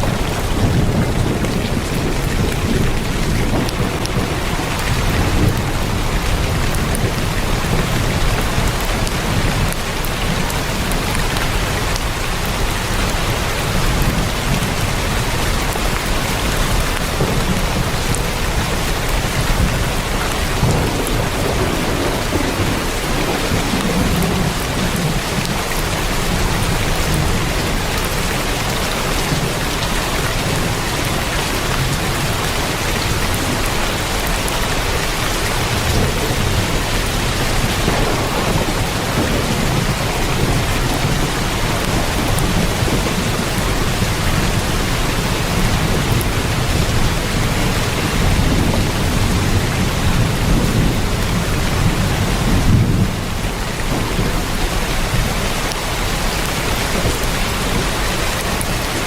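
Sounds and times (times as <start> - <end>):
heavy rain on a tin roof: 0.0 - 59.0
low rumble: 37.2 - 43.2.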